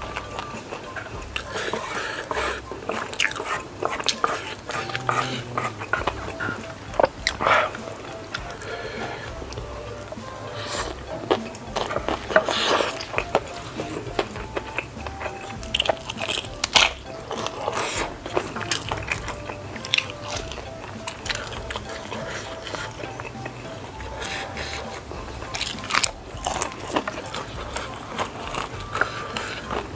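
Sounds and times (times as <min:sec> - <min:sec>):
faint background music: 0:00.0 - 0:29.9
person chewing noodles: 0:00.0 - 0:29.9
crunching fried dumpling: 0:10.6 - 0:29.9.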